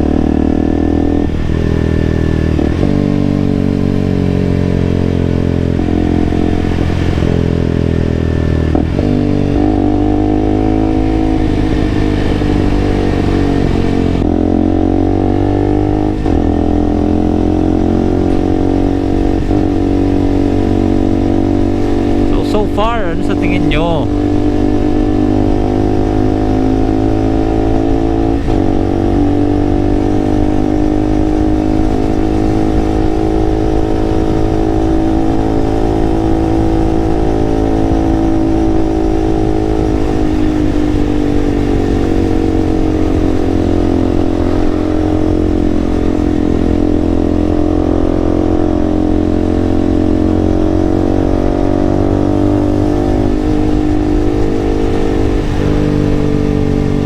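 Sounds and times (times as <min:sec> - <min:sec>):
motorcycle engine cruising: 0:00.0 - 0:23.2, 0:24.0 - 0:57.0
wind rumble on microphone: 0:49.7 - 0:57.0.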